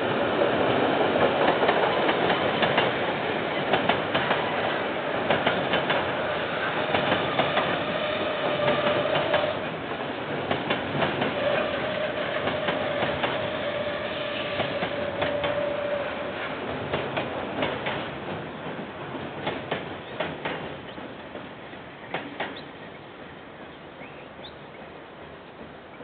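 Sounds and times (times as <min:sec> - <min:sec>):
wheels clicking over rail joints: 0:00.7 - 0:06.2, 0:06.8 - 0:13.6, 0:14.5 - 0:15.8.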